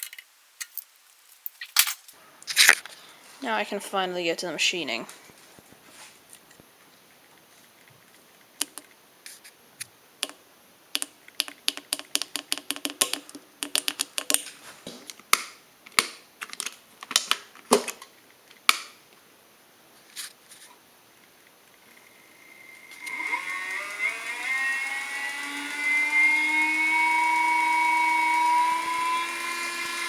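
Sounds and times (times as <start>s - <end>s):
tools and parts clicking: 0.0s - 2.9s, 8.6s - 8.9s, 11.0s - 18.9s.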